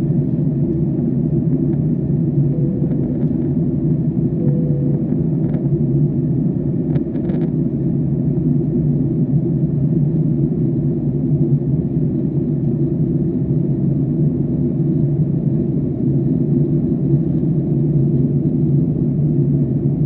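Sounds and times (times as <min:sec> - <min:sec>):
jet engines rumbling in cabin: 0:00.0 - 0:20.0.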